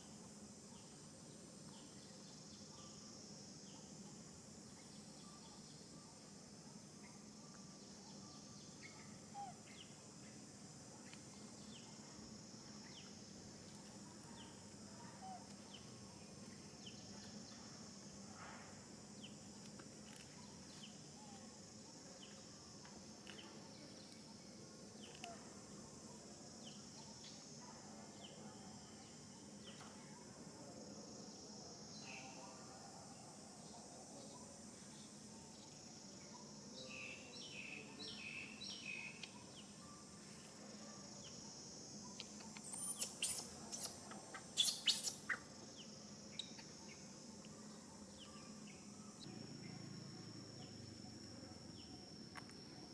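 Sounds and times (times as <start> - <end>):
high insect buzz: 33.4 - 52.9.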